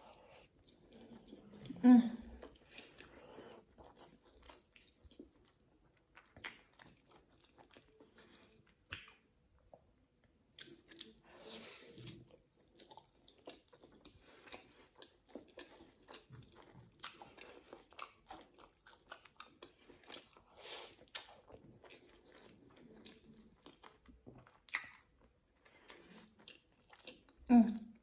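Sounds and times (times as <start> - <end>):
close chewing with mouth clicks: 0.0 - 9.9, 10.6 - 27.4.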